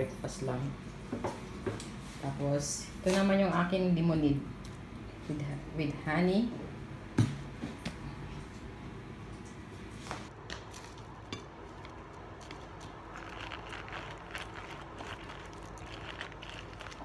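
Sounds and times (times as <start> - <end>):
lemon squishing on citrus reamer: 10.7 - 17.0.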